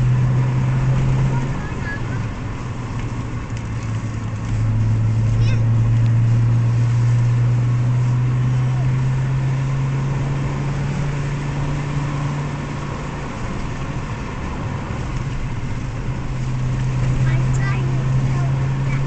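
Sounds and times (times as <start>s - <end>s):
car engine droning: 0.0s - 19.0s
road noise: 0.0s - 19.0s.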